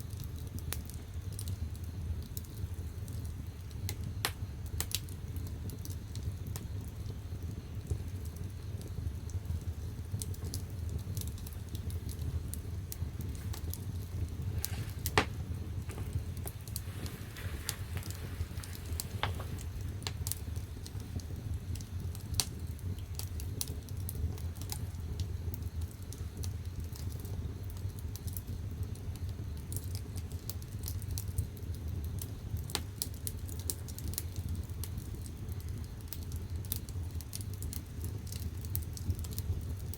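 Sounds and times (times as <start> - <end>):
firewood crackling and popping: 0.0 - 39.9
steady low rumble: 9.5 - 25.2.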